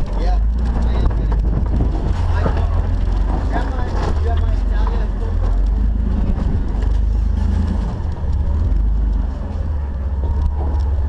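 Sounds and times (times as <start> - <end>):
engine running at low speed: 0.0 - 11.0.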